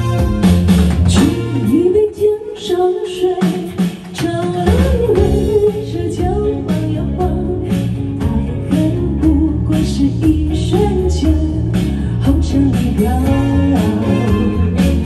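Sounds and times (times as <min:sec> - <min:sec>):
drum beat: 0:00.0 - 0:01.6
bass: 0:00.0 - 0:15.0
guitar: 0:00.0 - 0:15.0.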